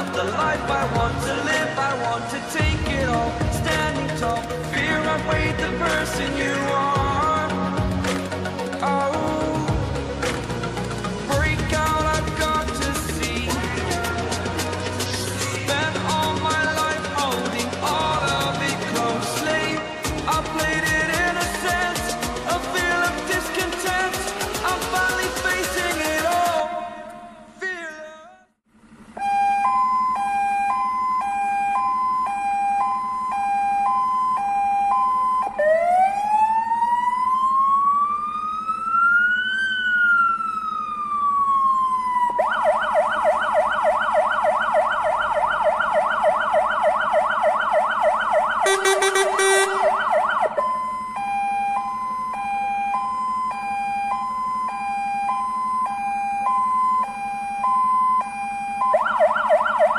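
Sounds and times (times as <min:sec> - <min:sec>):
fire engine siren: 0:00.0 - 0:27.6, 0:28.8 - 0:59.9
low-pitched horn blast: 0:48.6 - 0:50.0.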